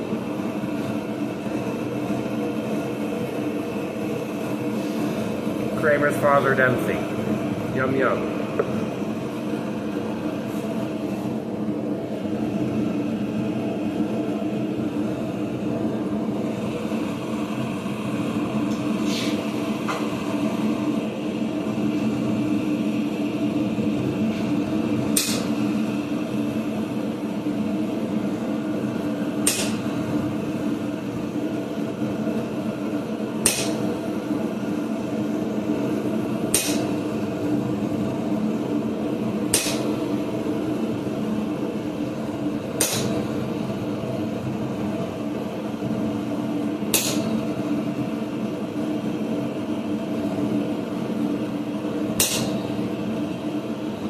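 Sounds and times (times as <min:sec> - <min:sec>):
steady drone: 0:00.0 - 0:54.0
hammer striking chisel on steel: 0:29.4 - 0:29.8, 0:36.5 - 0:36.9, 0:39.5 - 0:39.9, 0:42.8 - 0:43.2, 0:52.2 - 0:52.5.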